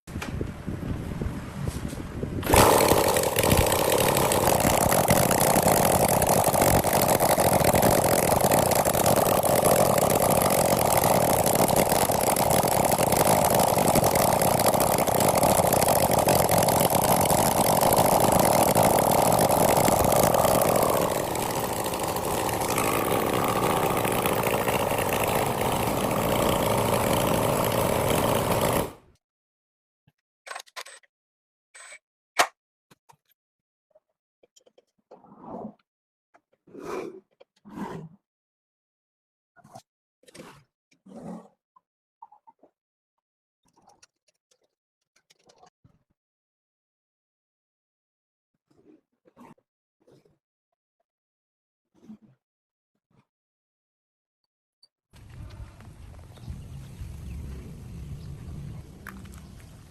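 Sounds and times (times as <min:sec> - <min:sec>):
engine running fast: 0:02.4 - 0:29.0, 0:55.2 - 0:59.9.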